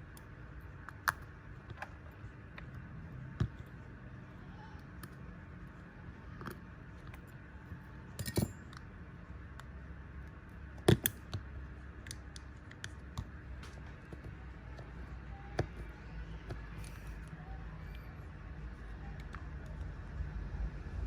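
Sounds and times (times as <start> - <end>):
steady low hum: 0.0 - 21.0
small tools clicking and tapping: 8.0 - 8.9, 10.8 - 14.9.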